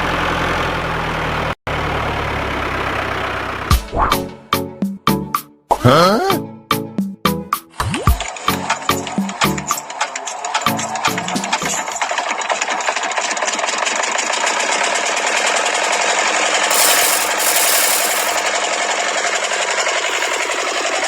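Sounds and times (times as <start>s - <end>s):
small electric motor rattling buzz: 16.7s - 18.5s, 20.0s - 21.0s.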